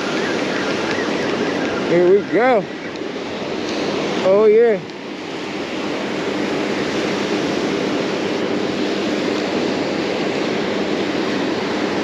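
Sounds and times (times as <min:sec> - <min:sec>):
ocean surf washing onto beach: 0:00.0 - 0:12.0
wind on microphone: 0:00.0 - 0:12.0.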